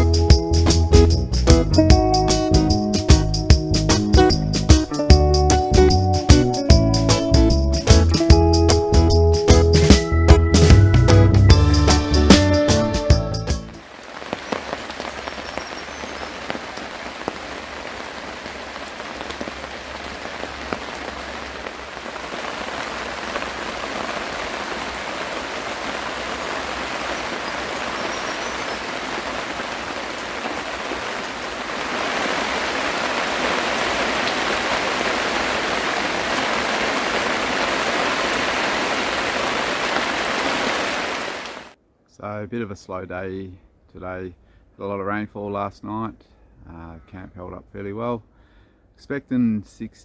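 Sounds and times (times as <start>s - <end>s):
rain falling: 0.0s - 8.4s, 13.6s - 41.8s.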